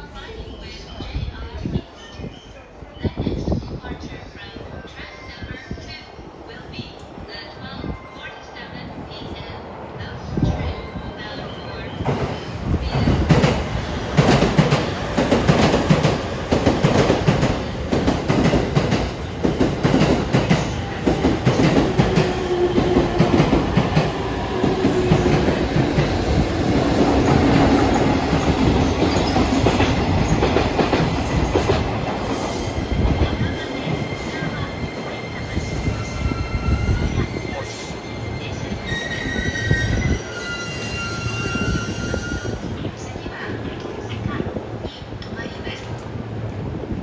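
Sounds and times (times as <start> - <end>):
train wheels clattering over rails: 12.0 - 38.0.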